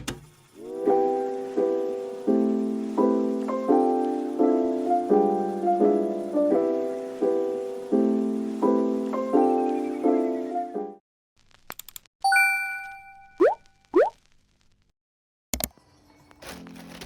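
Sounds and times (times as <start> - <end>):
mellow piano chords: 0.8 - 11.0.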